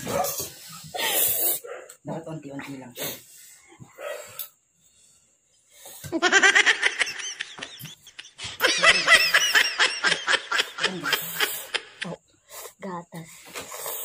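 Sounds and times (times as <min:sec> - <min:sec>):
person laughing hard: 0:06.1 - 0:12.2.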